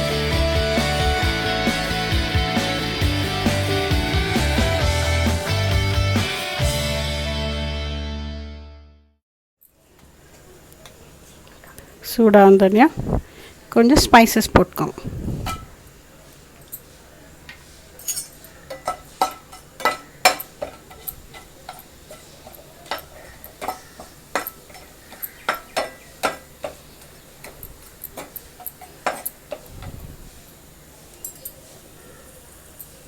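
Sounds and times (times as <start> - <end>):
spoon scraping cooking pan: 18.3 - 29.8.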